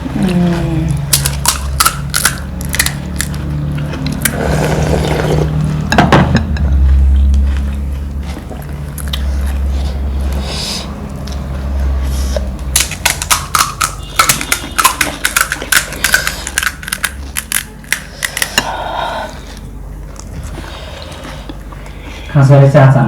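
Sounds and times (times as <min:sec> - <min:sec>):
crunching of crisp shells: 0:00.9 - 0:05.8, 0:06.4 - 0:10.4, 0:11.0 - 0:18.9.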